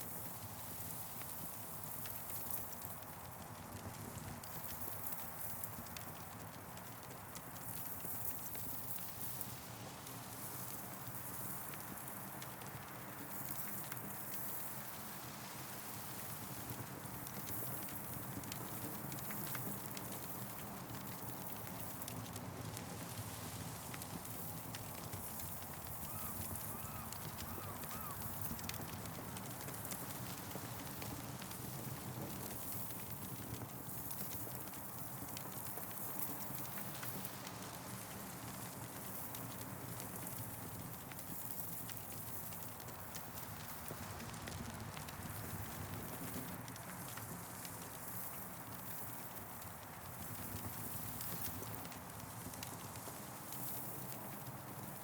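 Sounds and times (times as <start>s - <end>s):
campfire crackling and popping: 0.2s - 9.4s, 16.2s - 55.0s
wind through trees: 23.0s - 33.9s.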